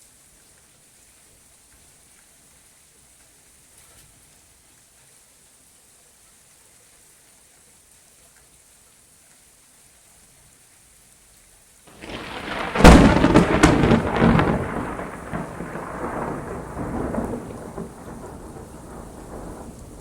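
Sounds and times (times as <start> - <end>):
faint steady rain: 0.0 - 20.0
thunder rumbling and cracking: 11.9 - 20.0.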